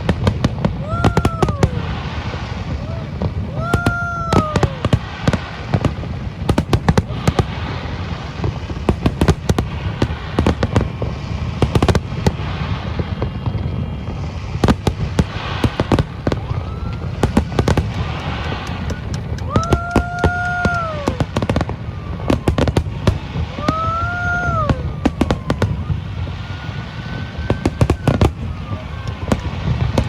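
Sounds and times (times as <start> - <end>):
fireworks bangs and crackling: 0.0 - 30.0
whistling tone: 16.0 - 21.3.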